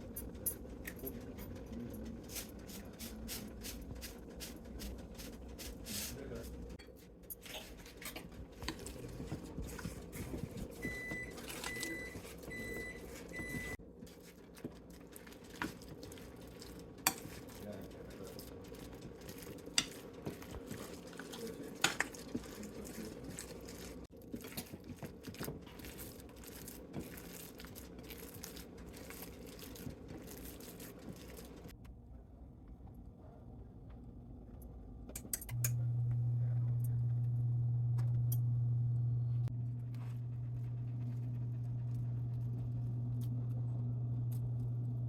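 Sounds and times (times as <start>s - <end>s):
low hum: 31.8s - 45.0s.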